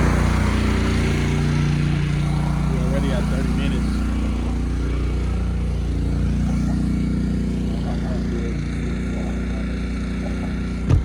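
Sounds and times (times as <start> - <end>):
pressure washer engine running: 0.0 - 11.0.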